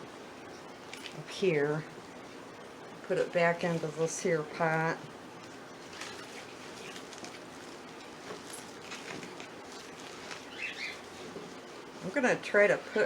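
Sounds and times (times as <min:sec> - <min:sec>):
steady low hiss: 0:00.0 - 0:13.0
soil rustling and scraping: 0:05.8 - 0:12.2.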